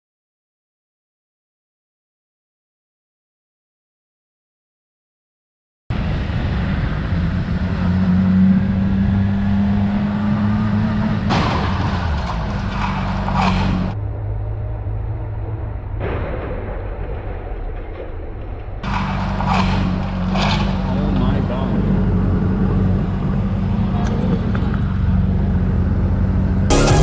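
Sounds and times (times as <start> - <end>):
road noise: 5.9 - 27.0
vehicle engine hum: 5.9 - 27.0.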